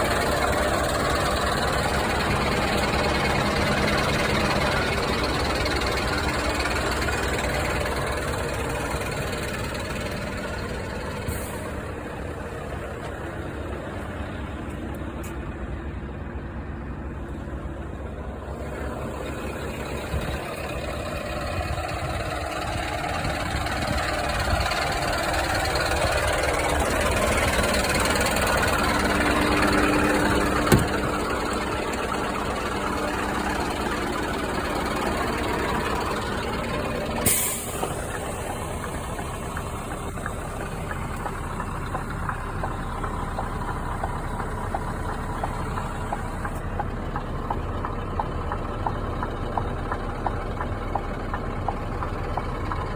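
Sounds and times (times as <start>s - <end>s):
truck diesel engine running: 0.0s - 52.9s
air brake hiss: 11.3s - 11.8s, 37.2s - 38.1s.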